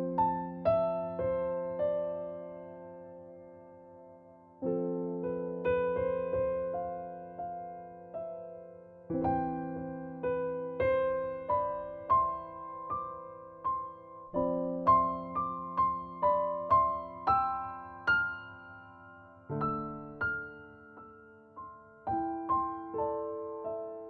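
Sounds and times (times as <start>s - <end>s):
slow solo piano melody: 0.0s - 24.0s.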